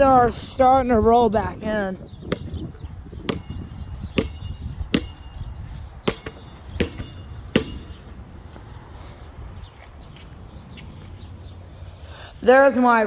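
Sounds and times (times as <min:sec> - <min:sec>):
wind rumbling on microphone: 0:00.0 - 0:12.5
sharp ringing thumps: 0:03.3 - 0:05.4, 0:06.1 - 0:08.2.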